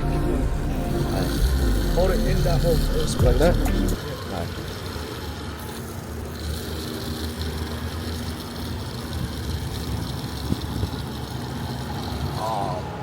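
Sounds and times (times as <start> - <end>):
fuel pump hum: 0.0 - 4.0.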